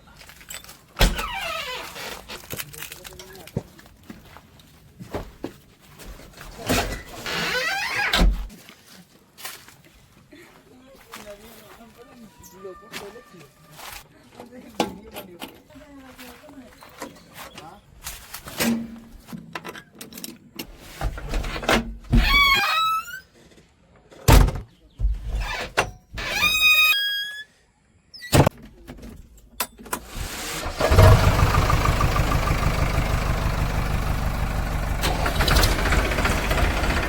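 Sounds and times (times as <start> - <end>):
diesel engine idling: 30.6 - 37.0.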